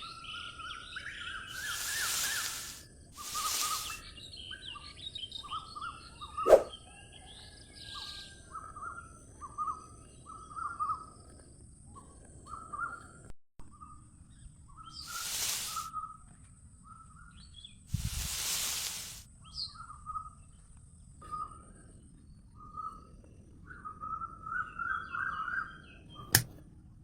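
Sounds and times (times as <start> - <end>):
birds chirping: 0.0 - 6.8, 14.8 - 16.0, 17.5 - 20.6
sharp click: 26.2 - 26.6.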